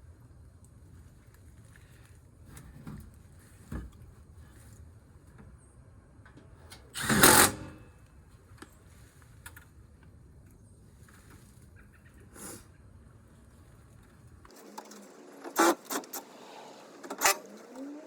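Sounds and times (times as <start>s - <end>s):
handheld power tool burst: 7.0s - 7.8s, 17.1s - 17.6s.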